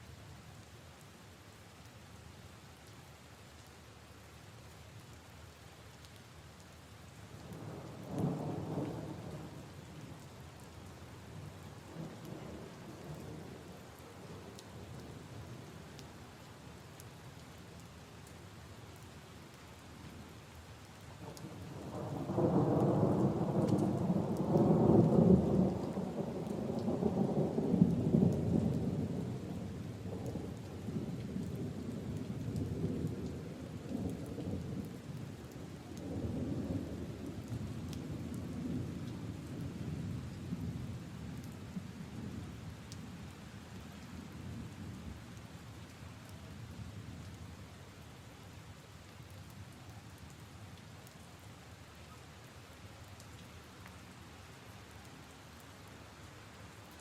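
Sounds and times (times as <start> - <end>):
rain on leaves and puddles: 0.0 - 57.0.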